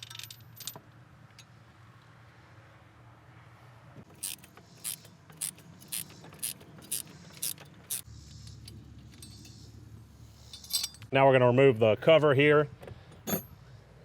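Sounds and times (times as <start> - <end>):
ratchet wrench clicking: 4.2 - 8.1.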